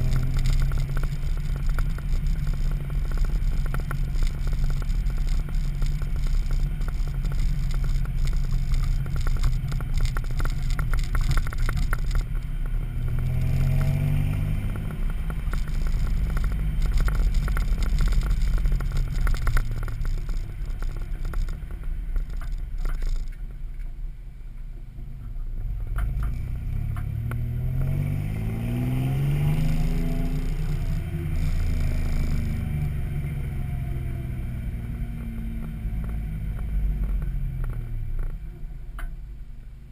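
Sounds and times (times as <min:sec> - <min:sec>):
engine revving deep exhaust: 0:00.0 - 0:22.4, 0:25.6 - 0:38.4.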